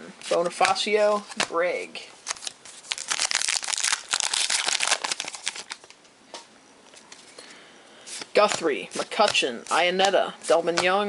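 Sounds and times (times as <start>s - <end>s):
foil wrapper tearing and crinkling: 2.2s - 5.9s.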